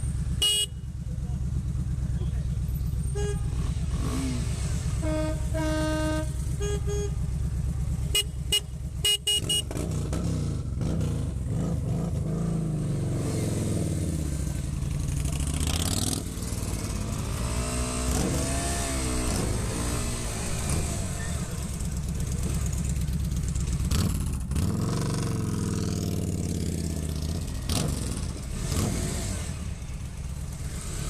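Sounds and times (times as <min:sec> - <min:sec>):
motorcycle engine revving: 0:00.0 - 0:31.0
vehicle horn: 0:00.4 - 0:00.9, 0:03.1 - 0:03.7, 0:04.8 - 0:07.3, 0:08.0 - 0:09.8.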